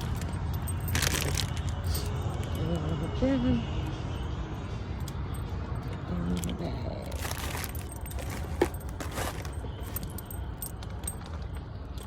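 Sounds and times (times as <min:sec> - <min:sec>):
small hard objects clinking: 0:00.0 - 0:02.6, 0:06.4 - 0:12.0.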